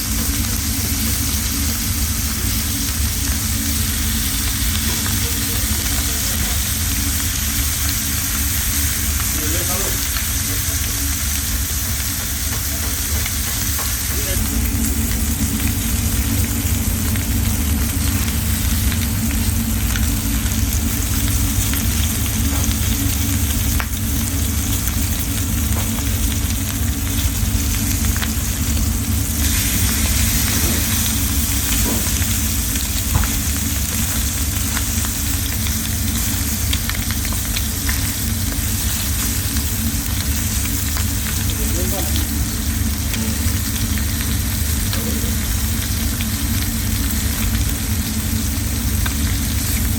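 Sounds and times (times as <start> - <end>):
chicken sizzling in a pan: 0.0 - 49.9
low steady hum: 12.6 - 49.9.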